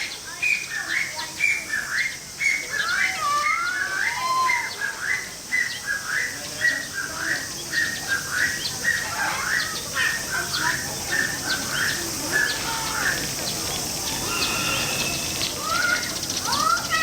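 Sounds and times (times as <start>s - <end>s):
small animals squealing: 2.8s - 5.0s, 14.0s - 17.0s
longer gliding calls: 14.0s - 16.7s.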